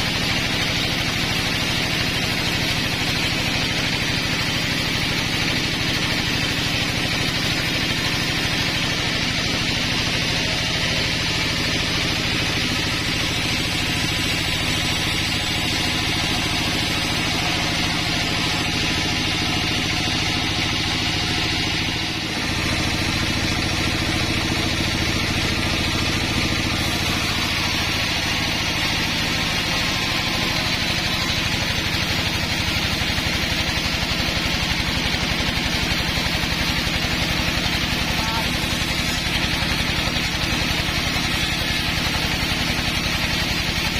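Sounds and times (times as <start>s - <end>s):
sawmill engine running: 0.0s - 43.9s.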